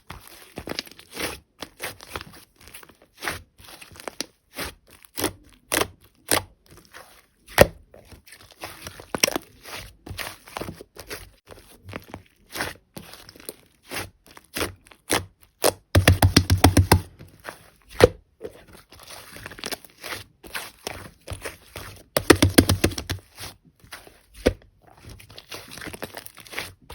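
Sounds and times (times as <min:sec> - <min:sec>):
slime kneaded by hand popping: 0:16.0 - 0:17.1, 0:22.2 - 0:23.2.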